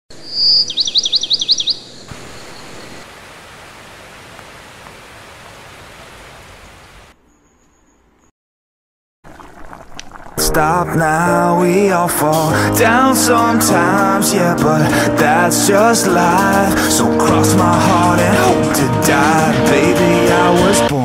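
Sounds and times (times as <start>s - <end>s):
downward-sweeping bird chirps: 0.1s - 3.0s, 7.2s - 8.3s
background hiss: 2.1s - 7.1s.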